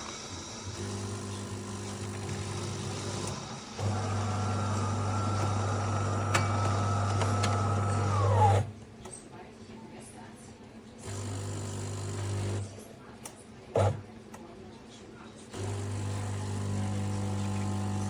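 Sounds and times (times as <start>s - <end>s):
coffee machine buzzing hum: 0.0s - 8.8s, 11.0s - 12.8s, 15.4s - 18.0s.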